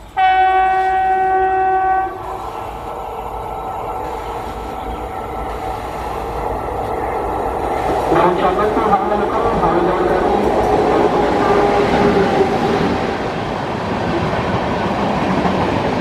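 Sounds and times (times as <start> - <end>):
train rumbling past: 0.0 - 16.0
train horn steady tone: 0.2 - 4.6, 11.1 - 12.8.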